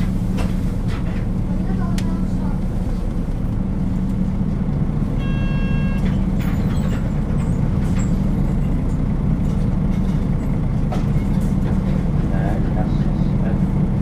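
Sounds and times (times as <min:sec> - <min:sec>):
bus diesel engine running: 0:00.0 - 0:14.0
brief electronic tone: 0:05.2 - 0:06.2.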